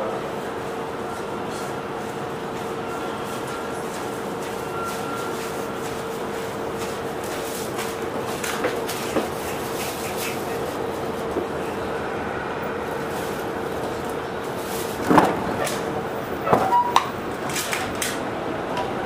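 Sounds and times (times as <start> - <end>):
wheel and rail noise: 0.0 - 19.0
electric train inverter tone: 0.9 - 7.4.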